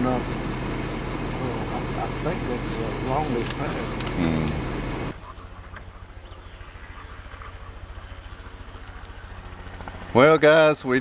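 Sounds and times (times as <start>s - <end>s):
low pulsing engine hum: 0.0s - 10.2s
person speaking: 1.3s - 5.2s.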